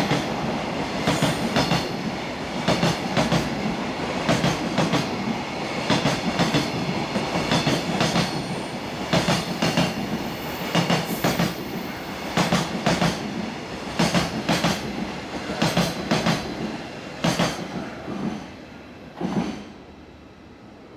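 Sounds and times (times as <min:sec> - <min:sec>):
train rumble: 0:00.0 - 0:19.9.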